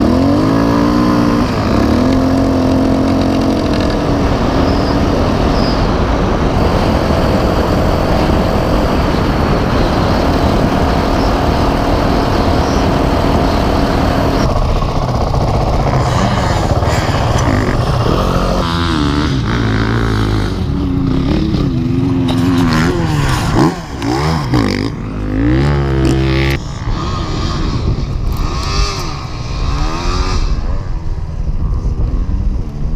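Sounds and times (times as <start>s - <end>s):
dirt bike engines revving: 0.0s - 32.9s.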